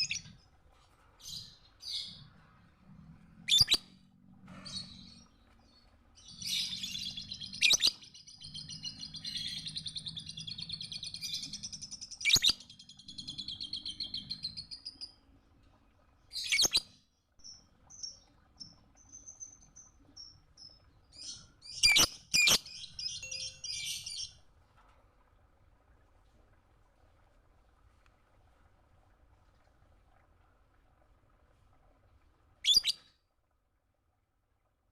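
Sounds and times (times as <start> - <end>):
lovebird twittering: 3.5 - 3.8, 6.4 - 8.6.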